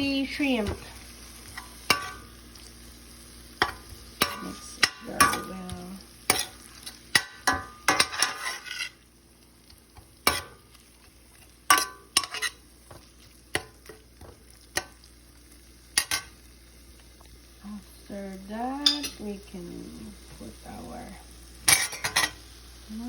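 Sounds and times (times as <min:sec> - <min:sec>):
faint sizzle: 0:00.0 - 0:23.0
utensil clinking and scraping pan: 0:00.6 - 0:02.3, 0:03.6 - 0:09.0, 0:10.2 - 0:15.0, 0:21.7 - 0:22.4.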